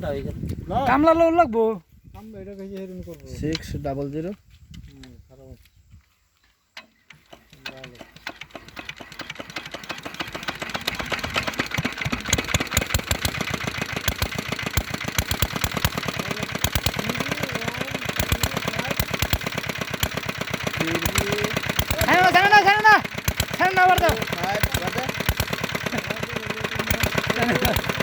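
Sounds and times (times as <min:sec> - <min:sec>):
diesel engine starting up: 0:07.2 - 0:28.0.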